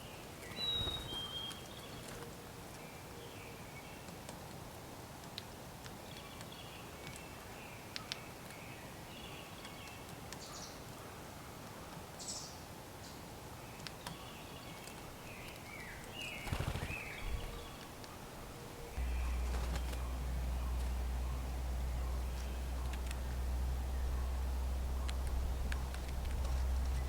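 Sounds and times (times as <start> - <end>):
outdoor background hiss: 0.0 - 27.0
faint bird calls: 15.4 - 27.0
low thumps: 18.9 - 27.0.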